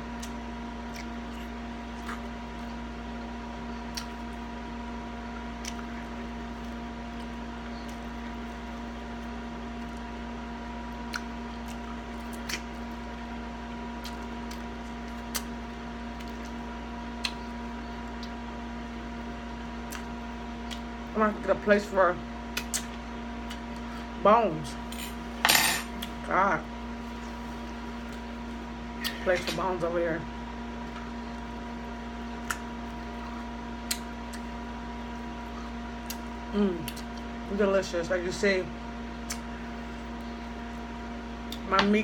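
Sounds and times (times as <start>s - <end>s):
chewing and lip-smacking: 0.0s - 2.8s, 3.8s - 4.5s, 5.3s - 10.1s, 10.8s - 13.2s, 13.9s - 18.5s, 19.2s - 21.0s, 22.5s - 24.1s, 27.2s - 29.2s, 30.8s - 37.4s, 39.2s - 41.7s
steady background hum: 0.0s - 42.0s
small wet mouth clicks: 33.8s - 34.5s, 39.2s - 39.5s.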